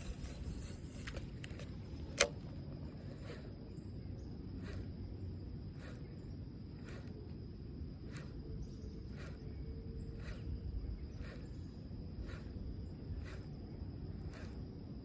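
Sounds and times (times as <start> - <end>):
low rumble of wind or water: 0.0 - 15.0
soft ticks: 4.6 - 5.0, 5.8 - 6.1, 6.8 - 7.4, 8.1 - 9.5, 12.2 - 14.7.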